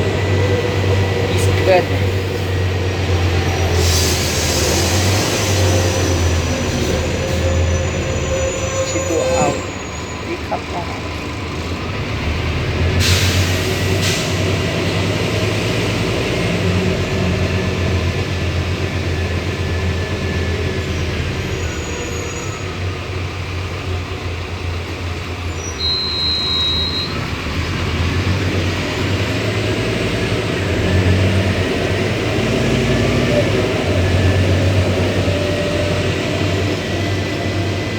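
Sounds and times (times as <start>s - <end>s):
bus diesel engine running: 0.0s - 37.9s
air brake hisses: 3.6s - 7.7s, 13.0s - 14.5s
high beep: 25.8s - 27.2s.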